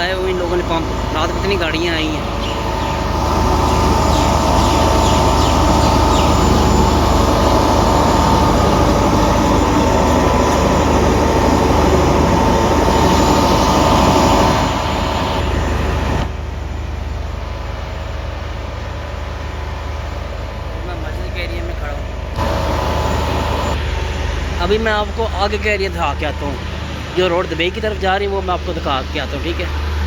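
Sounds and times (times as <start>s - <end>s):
water pumps droning: 0.0s - 30.0s.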